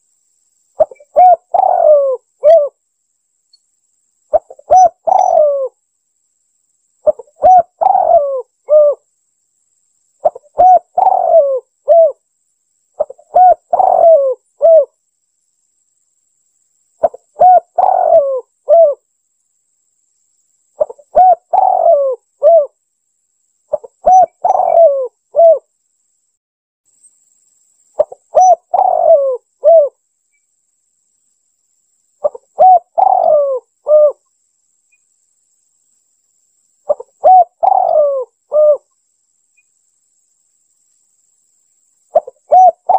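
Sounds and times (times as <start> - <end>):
dove cooing: 0.8 - 2.8, 4.3 - 5.8, 7.0 - 9.0, 10.2 - 12.2, 13.0 - 15.0, 17.0 - 19.0, 20.8 - 22.8, 23.7 - 25.7, 28.0 - 30.0, 32.2 - 34.2, 36.9 - 38.9, 42.1 - 42.9.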